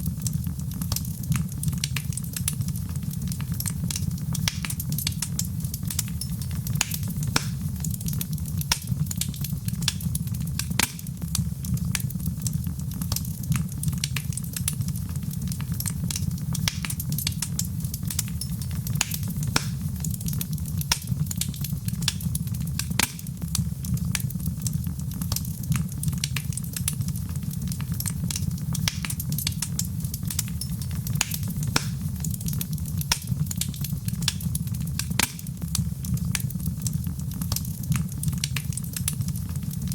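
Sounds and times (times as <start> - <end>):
fire crackling in a fireplace: 0.0 - 39.9.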